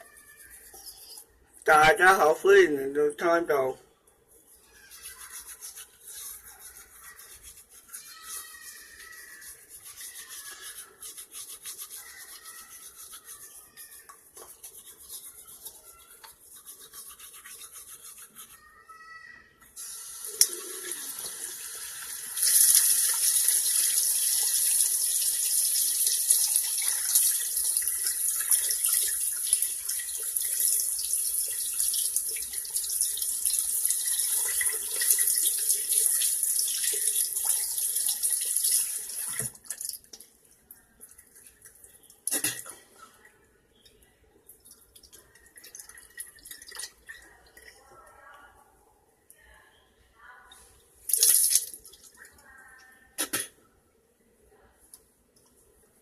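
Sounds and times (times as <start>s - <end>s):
water running from a tap: 19.8s - 40.2s, 51.1s - 52.0s.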